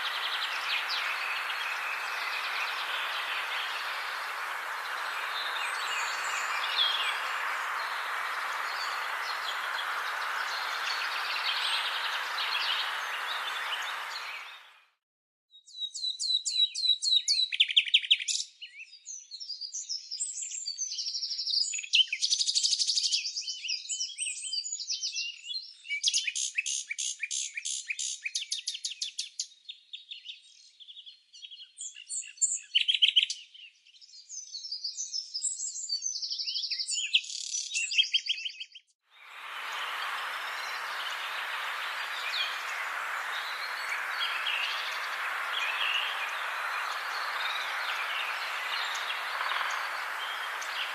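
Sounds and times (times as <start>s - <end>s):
faint bird calls: 0.0s - 14.7s, 39.2s - 50.9s
hiss-like outdoor ambience: 0.0s - 14.7s, 39.1s - 50.9s
songbirds singing: 0.0s - 14.7s, 36.2s - 50.9s.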